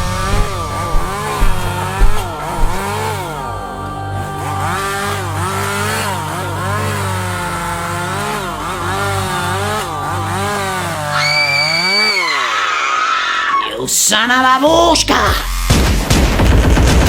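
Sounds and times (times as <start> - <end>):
steady low drone: 0.0 - 12.1
high steady tone: 0.0 - 12.4
chainsaw revving: 0.0 - 13.1, 15.2 - 17.0.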